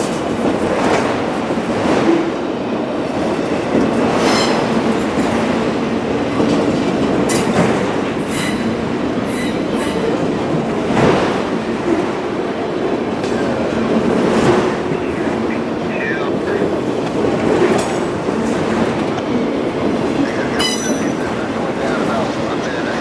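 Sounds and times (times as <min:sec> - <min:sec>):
high wheel squeals: 0:04.1 - 0:05.2, 0:08.2 - 0:10.3.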